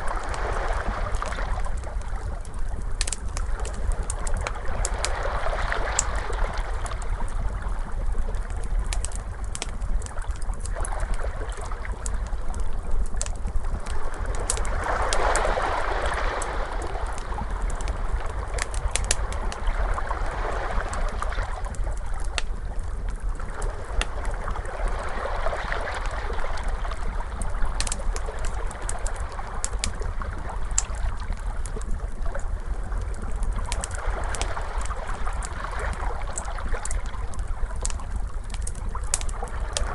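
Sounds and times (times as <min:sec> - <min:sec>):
ocean waves washing in: 0:00.0 - 0:01.8, 0:14.1 - 0:21.7
fire crackling: 0:00.0 - 0:39.9.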